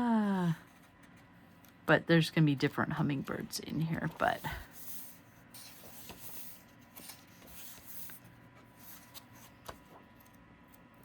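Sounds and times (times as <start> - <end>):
faint paper rustling: 3.1 - 11.0.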